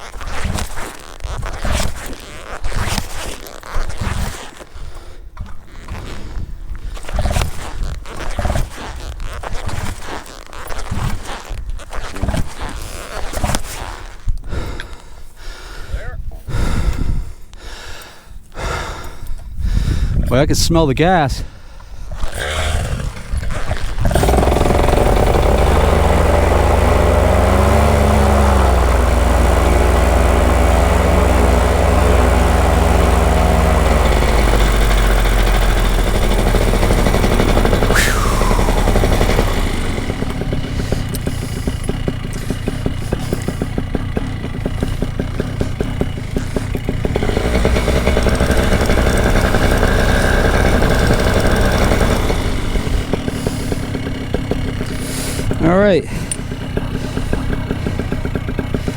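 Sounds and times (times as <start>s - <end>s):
paramotor engine running: 22.4s - 58.9s.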